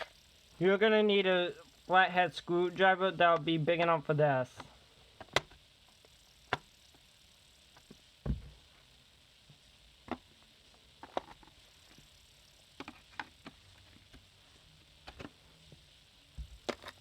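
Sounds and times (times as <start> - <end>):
dull thump: 8.2 - 8.6
plastic vacuum parts clicking: 16.6 - 17.0.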